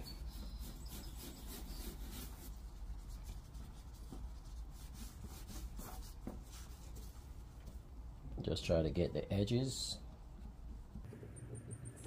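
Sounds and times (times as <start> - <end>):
wipe rubbing on plastic: 0.1 - 7.3.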